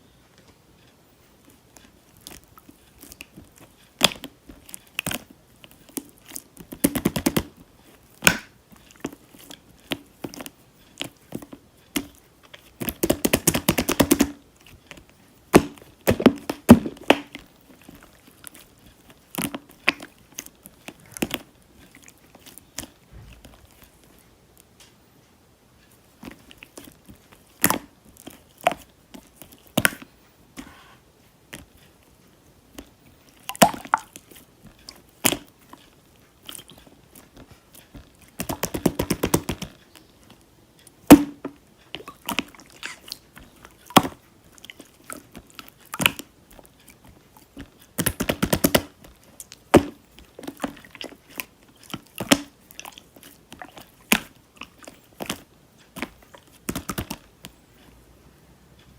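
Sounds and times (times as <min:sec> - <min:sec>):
slime clicking and popping: 0:03.0 - 0:07.6, 0:08.2 - 0:22.9, 0:26.2 - 0:30.1, 0:32.8 - 0:35.5, 0:38.2 - 0:39.8, 0:41.0 - 0:57.3.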